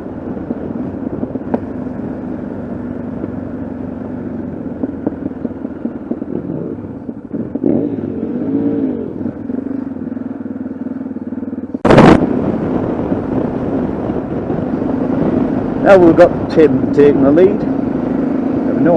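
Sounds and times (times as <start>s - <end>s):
motorcycle engine revving: 0.0s - 18.9s
loud burst of noise: 11.8s - 12.5s.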